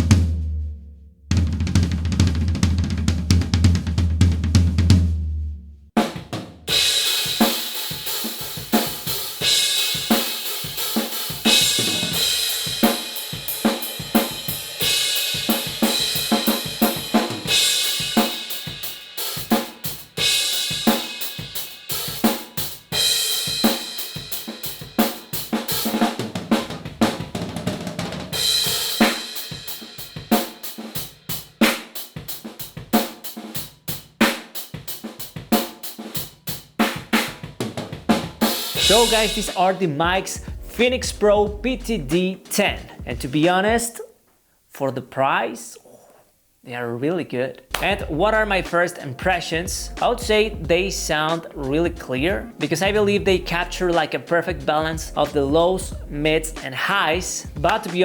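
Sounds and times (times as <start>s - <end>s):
drum kit playing: 0.0s - 44.1s, 47.7s - 58.0s
cymbal crash: 38.5s - 39.8s.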